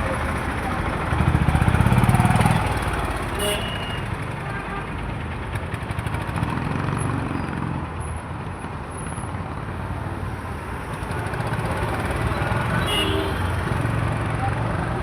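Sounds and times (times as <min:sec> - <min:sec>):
motorcycle engine: 0:00.0 - 0:07.8
passing vehicle engines: 0:00.0 - 0:15.0.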